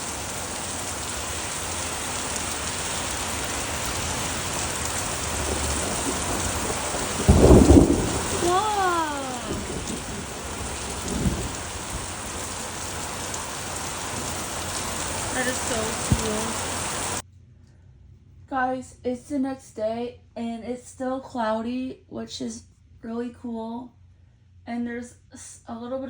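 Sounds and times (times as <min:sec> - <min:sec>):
heavy rain pouring: 0:00.0 - 0:17.2
thunder clap and rumble: 0:00.0 - 0:17.2.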